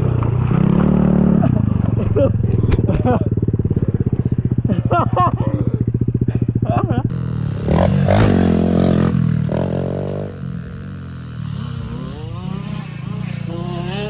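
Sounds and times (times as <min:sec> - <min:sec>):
pit bike engine revving: 0:00.0 - 0:14.0.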